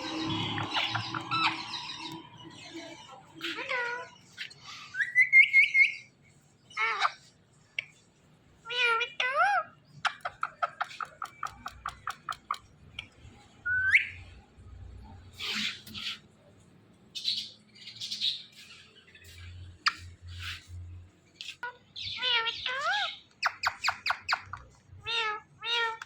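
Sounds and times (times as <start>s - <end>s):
parrot raspy chatter: 0.0s - 6.0s, 6.7s - 7.9s, 8.7s - 12.7s, 21.4s - 26.0s.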